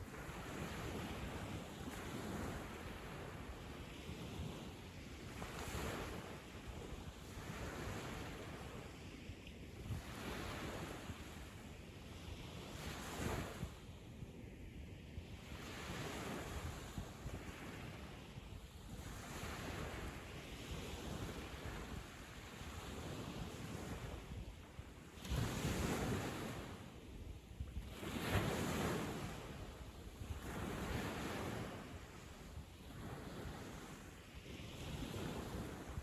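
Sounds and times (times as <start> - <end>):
waves breaking on a beach: 0.0 - 36.0
wind on microphone: 0.0 - 36.0.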